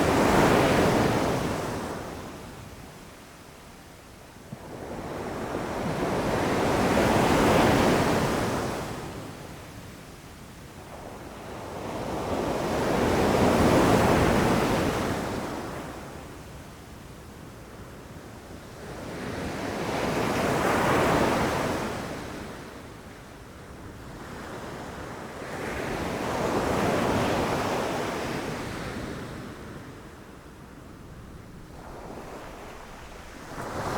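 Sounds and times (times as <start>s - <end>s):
sea waves breaking on beach: 31.0s - 33.9s.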